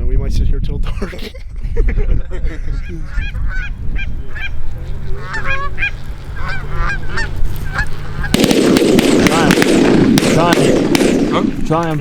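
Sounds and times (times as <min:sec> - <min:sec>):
geese honking: 0:02.7 - 0:10.5.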